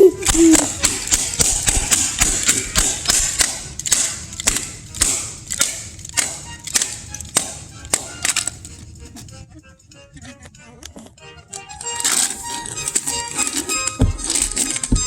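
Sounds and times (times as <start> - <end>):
sharp snapping clicks: 0.2 - 8.8.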